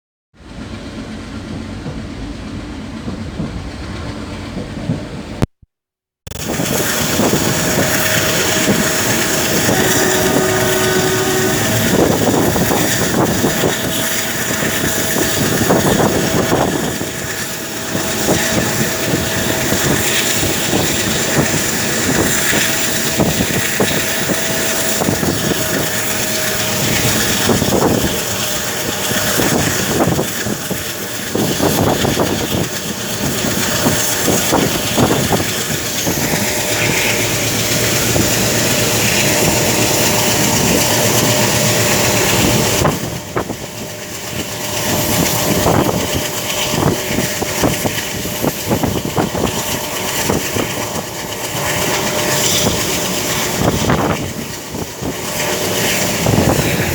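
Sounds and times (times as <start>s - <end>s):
train wheels rumbling on rails: 0.4s - 5.4s, 6.3s - 56.9s
thin steady whine: 6.3s - 29.6s, 34.0s - 56.9s.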